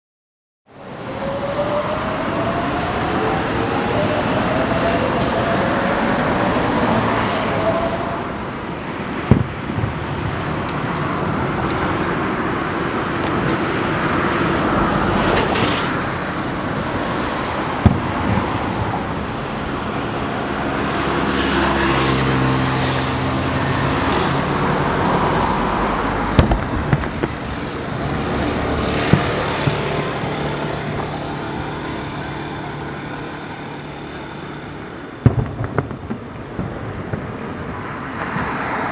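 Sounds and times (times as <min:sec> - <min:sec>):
road traffic: 0:00.7 - 0:38.9
distant firework bangs: 0:07.1 - 0:14.0, 0:16.7 - 0:23.0, 0:23.7 - 0:38.9.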